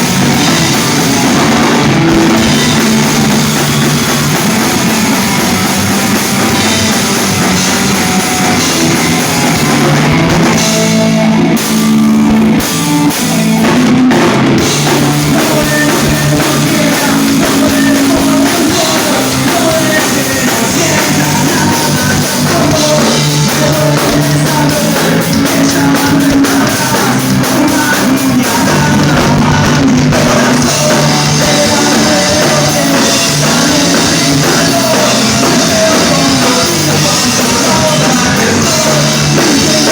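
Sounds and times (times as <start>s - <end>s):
rock band playing: 0.0s - 39.9s
person singing: 8.5s - 39.9s.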